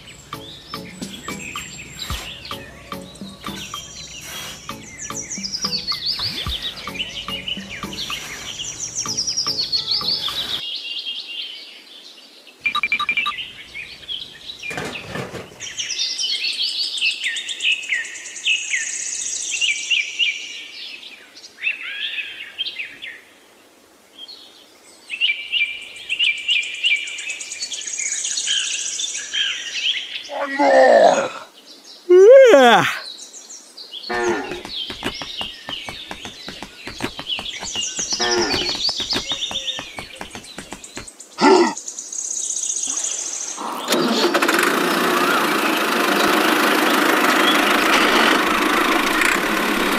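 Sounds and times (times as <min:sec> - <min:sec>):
birds chirping and singing: 0:00.0 - 0:10.8, 0:12.9 - 0:17.4, 0:32.8 - 0:44.0.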